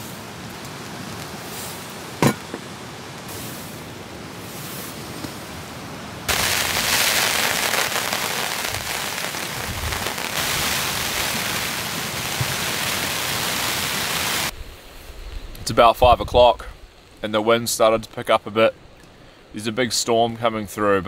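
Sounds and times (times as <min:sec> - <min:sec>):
rain falling: 0:00.0 - 0:14.6.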